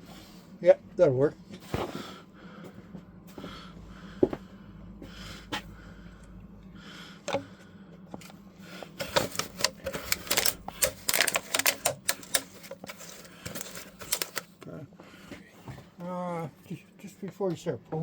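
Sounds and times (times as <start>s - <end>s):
steady low hum: 0.0s - 18.0s
clicking and clattering: 9.0s - 14.7s.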